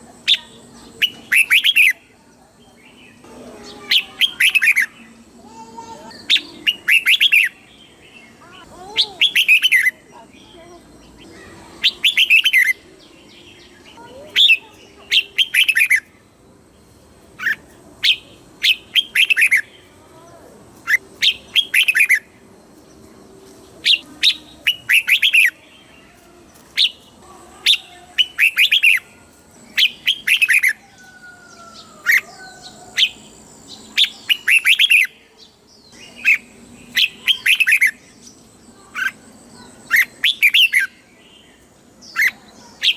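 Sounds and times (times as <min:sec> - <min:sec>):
bird singing whistled phrases: 0:00.3 - 0:02.0, 0:03.8 - 0:05.0, 0:06.1 - 0:08.0, 0:09.0 - 0:10.0, 0:11.2 - 0:12.8, 0:14.3 - 0:16.1, 0:17.4 - 0:19.7, 0:20.8 - 0:22.3, 0:23.8 - 0:25.6, 0:27.7 - 0:29.1, 0:29.7 - 0:35.2, 0:35.8 - 0:38.1, 0:39.8 - 0:41.0.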